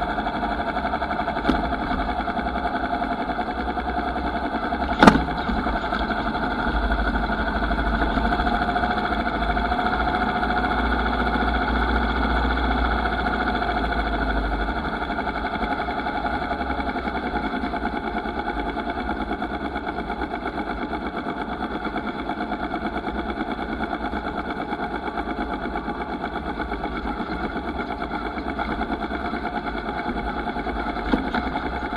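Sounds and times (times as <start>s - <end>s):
motorcycle engine running: 0.0s - 31.9s
sharp knock: 5.0s - 5.5s.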